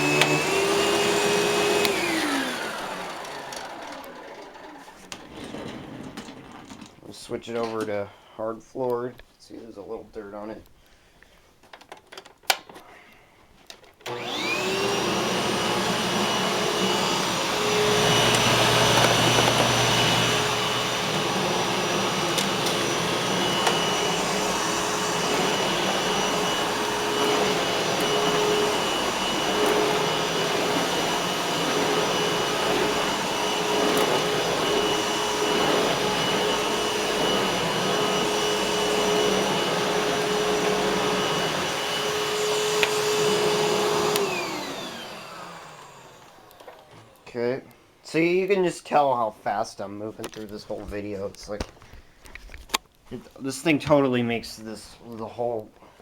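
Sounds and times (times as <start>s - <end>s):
vacuum cleaner motor whine: 0.0s - 6.8s, 14.0s - 47.3s.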